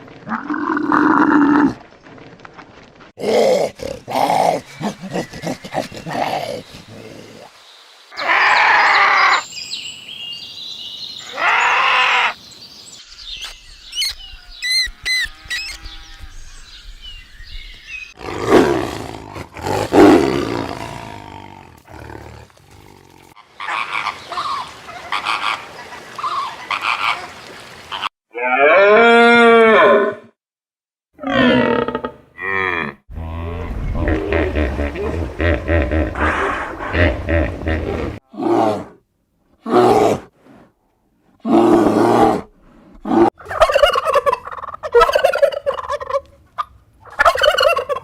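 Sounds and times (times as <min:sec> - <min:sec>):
animal calls and roars: 0:00.1 - 0:01.9, 0:03.2 - 0:07.5, 0:18.1 - 0:30.3, 0:31.2 - 0:39.0, 0:41.3 - 0:46.2.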